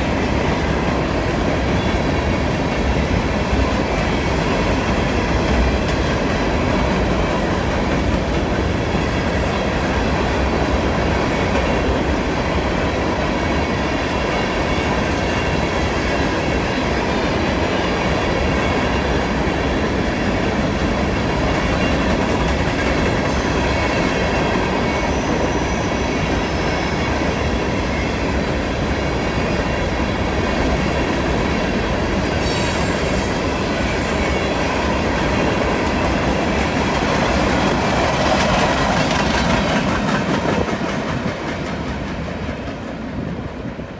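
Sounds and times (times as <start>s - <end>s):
freight train wheels rumbling: 0.0s - 43.9s
wheel flange squeal: 32.4s - 43.0s.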